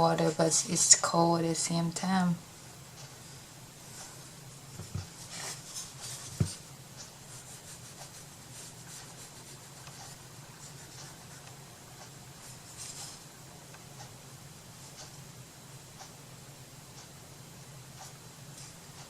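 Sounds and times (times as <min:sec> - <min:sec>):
low steady hum: 0:00.0 - 0:19.0
small knocks: 0:04.8 - 0:05.2.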